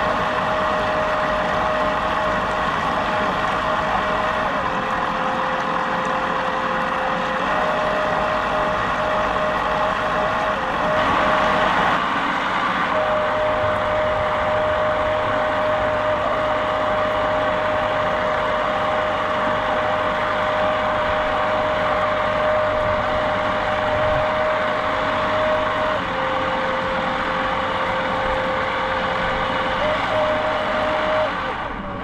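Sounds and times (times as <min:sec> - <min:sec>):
boat motor running: 0:00.0 - 0:32.0.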